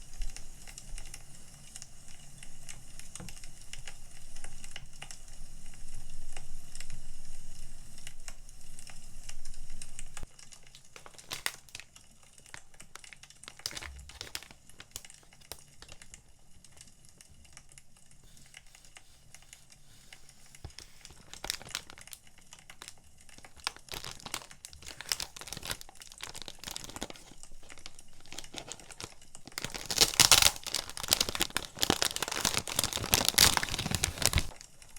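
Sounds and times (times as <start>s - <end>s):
packaging crinkling and rustling: 8.8s - 34.9s.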